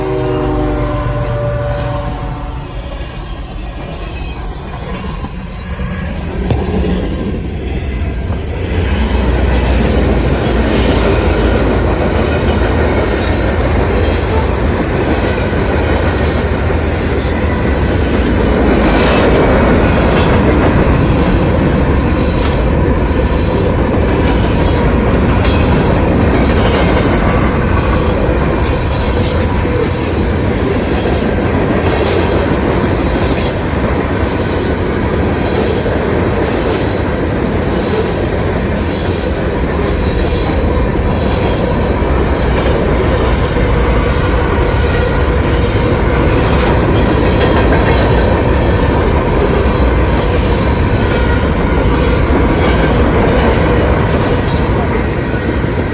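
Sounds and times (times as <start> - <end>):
high-pitched train screech: 0.0 - 6.3, 26.6 - 30.6, 52.8 - 55.4
train wheels rumbling on rails: 0.0 - 55.9.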